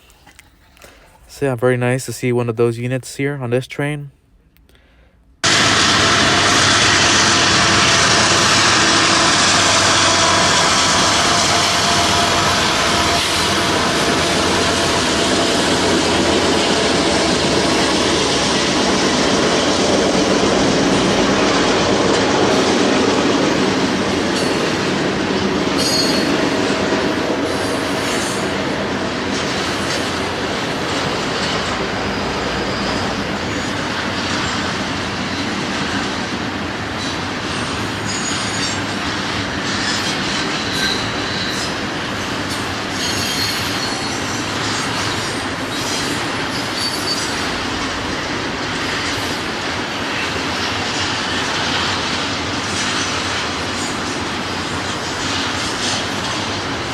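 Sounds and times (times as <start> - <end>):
freight train wheels rumbling: 5.4 - 56.9
high wheel squeals: 24.3 - 24.8, 25.8 - 26.5, 31.6 - 35.6, 37.0 - 39.0, 39.7 - 41.8, 42.5 - 47.8.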